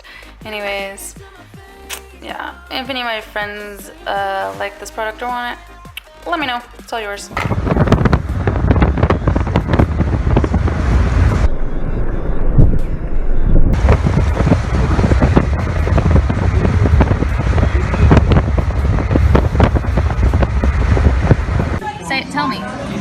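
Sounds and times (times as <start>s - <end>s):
wind buffeting microphone: 7.3s - 21.9s.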